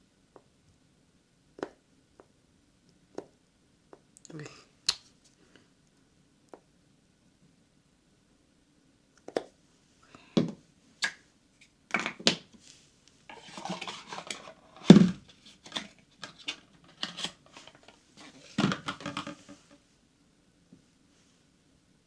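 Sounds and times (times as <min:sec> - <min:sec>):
objects scraping: 0:12.7 - 0:19.8
hard objects knocking and clinking: 0:18.6 - 0:19.6.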